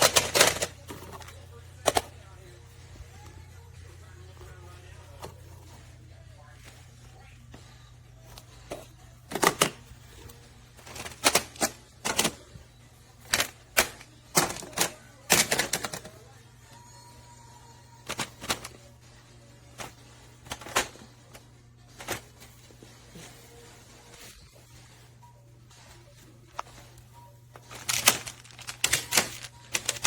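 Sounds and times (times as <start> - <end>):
metal parts clicking and clacking: 0.0 - 2.0, 27.6 - 30.0.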